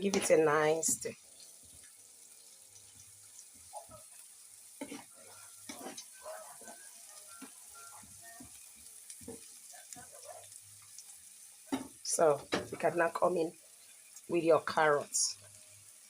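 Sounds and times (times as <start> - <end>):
food sizzling in oil: 0.0 - 16.0
spatula scraping a pan: 4.7 - 7.8.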